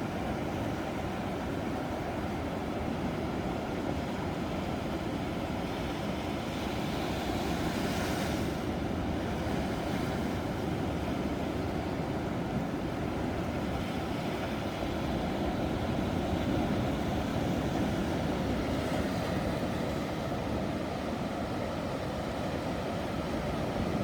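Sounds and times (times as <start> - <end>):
ocean waves roaring: 12.8 - 24.0.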